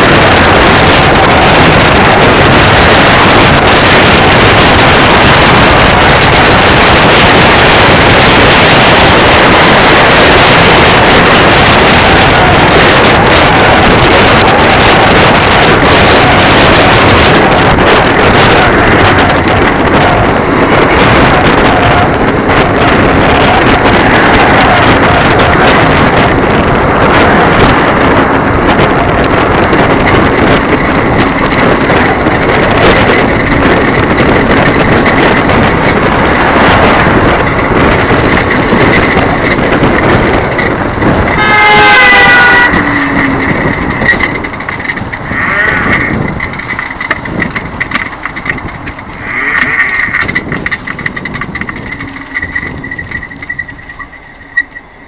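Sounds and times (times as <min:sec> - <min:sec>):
road noise: 0:00.0 - 0:55.0
wind rushing over microphone: 0:00.0 - 0:55.0
vehicle horn honking: 0:41.3 - 0:43.2.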